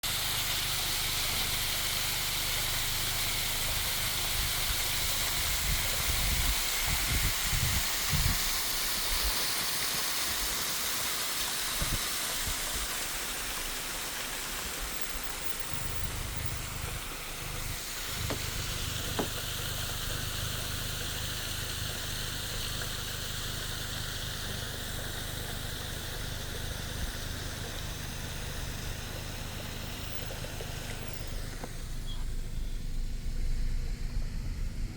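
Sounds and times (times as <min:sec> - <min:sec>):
rain and running water: 0:00.0 - 0:34.4
low uneven rumble: 0:12.7 - 0:34.9.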